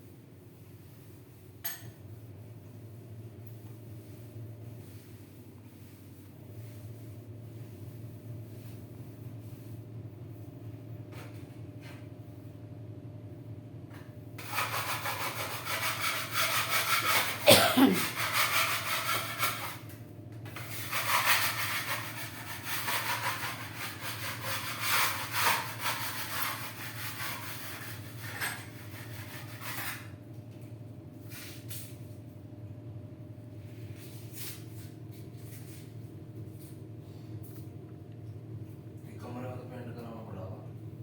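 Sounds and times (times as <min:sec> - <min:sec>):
scratchy rubbing and rustling: 0:14.4 - 0:17.4, 0:18.0 - 0:19.8, 0:20.6 - 0:30.1.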